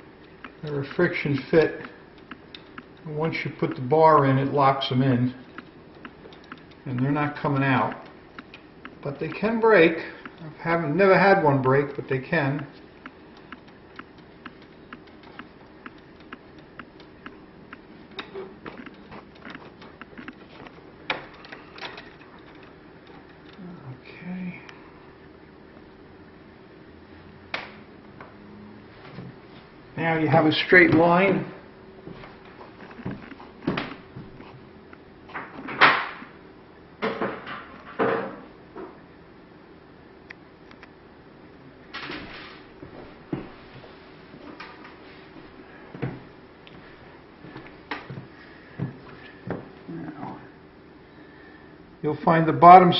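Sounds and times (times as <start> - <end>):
low steady hum: 0.0 - 52.9
shutter louvers rattling: 18.0 - 23.6.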